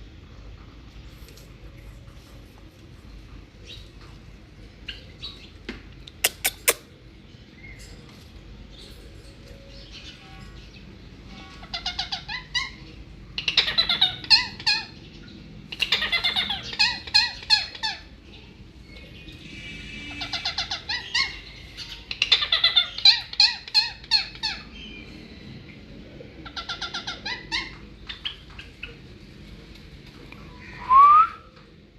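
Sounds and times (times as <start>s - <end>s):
parrots harsh chattering calls: 6.1s - 6.9s, 11.6s - 12.8s, 13.4s - 15.0s, 15.7s - 18.1s, 19.6s - 24.7s, 26.4s - 28.4s.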